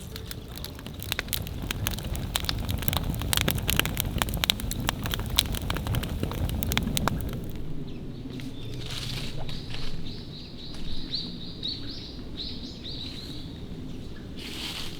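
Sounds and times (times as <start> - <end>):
campfire crackling and popping: 0.0 - 7.8
low rush of flames: 0.0 - 7.8.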